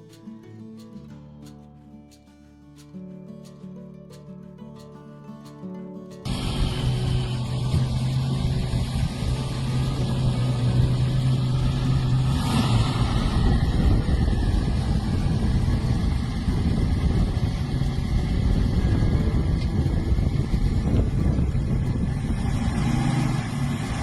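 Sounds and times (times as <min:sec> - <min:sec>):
car engine running: 0:06.2 - 0:24.0.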